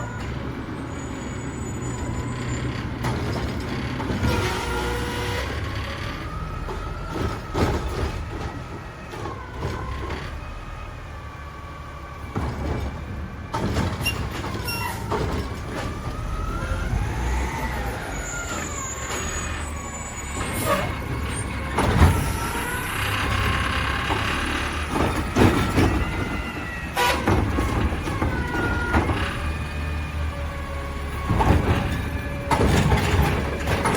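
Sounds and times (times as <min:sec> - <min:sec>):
garbage truck engine whining: 0:00.0 - 0:33.9
clanks and bangs: 0:12.3 - 0:16.6, 0:20.3 - 0:29.7, 0:31.0 - 0:33.9.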